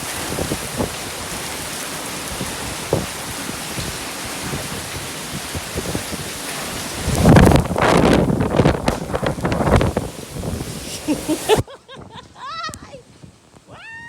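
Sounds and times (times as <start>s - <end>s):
steady rain: 0.0s - 11.7s
low thumps: 7.3s - 10.6s.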